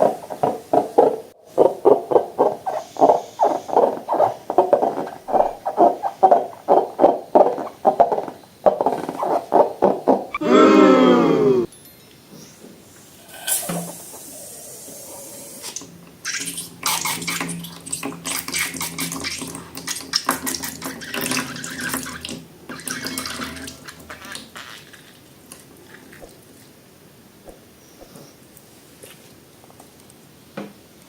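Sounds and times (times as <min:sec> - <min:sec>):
soft liquid hiss: 0:02.6 - 0:06.8, 0:12.3 - 0:29.4.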